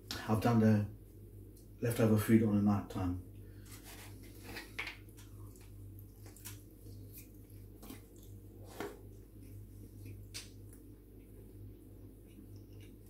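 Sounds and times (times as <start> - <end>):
steady low hum: 0.0 - 13.0
man chewing food: 4.2 - 13.0.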